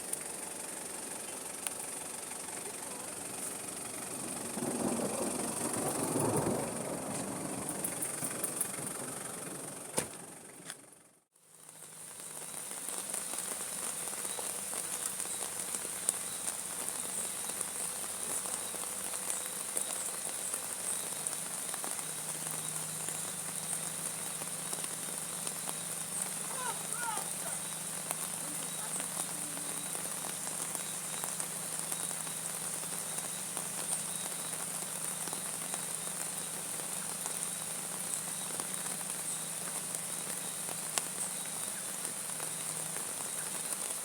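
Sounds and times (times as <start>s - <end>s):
steady rain hiss: 0.0s - 44.0s.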